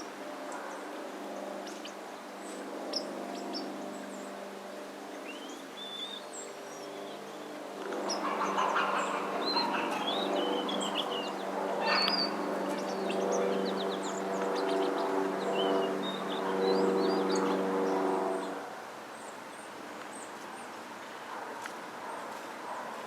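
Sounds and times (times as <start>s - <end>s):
birds chirping: 5.2s - 20.8s
steady low hum: 6.8s - 20.7s.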